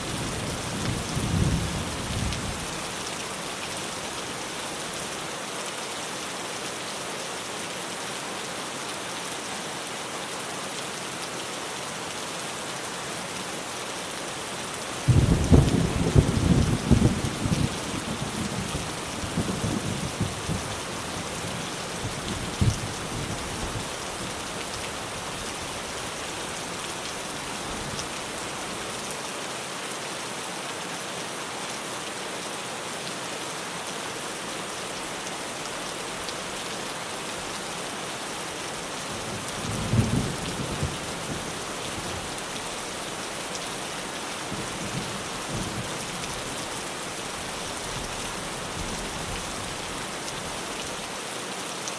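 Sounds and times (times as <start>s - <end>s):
heavy rain on a tin roof: 0.0s - 51.9s
low thunder rumbles: 15.1s - 20.7s.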